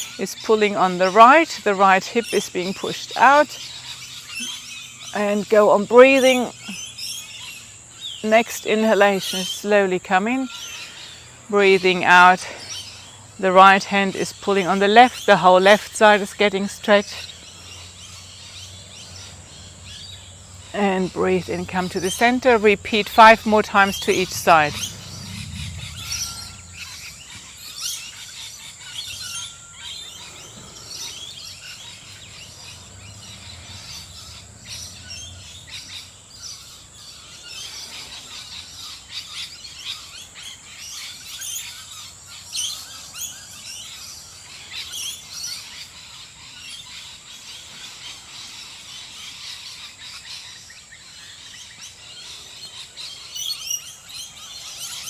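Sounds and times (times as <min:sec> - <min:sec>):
birds chirping and calling: 0:00.0 - 0:55.0
steady high-pitched tone: 0:20.8 - 0:27.8.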